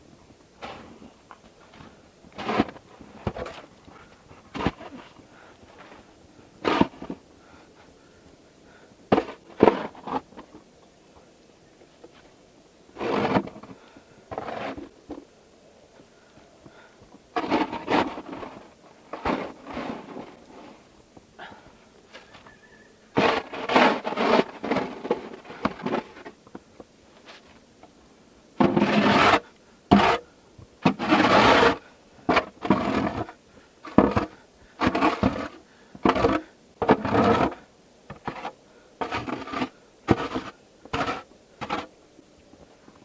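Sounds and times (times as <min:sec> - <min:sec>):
snow shovel scraping snow: 0:00.6 - 0:01.0, 0:02.4 - 0:03.6, 0:06.6 - 0:07.2, 0:13.0 - 0:13.6, 0:14.3 - 0:14.9, 0:17.4 - 0:20.9, 0:23.2 - 0:26.3, 0:28.6 - 0:41.9.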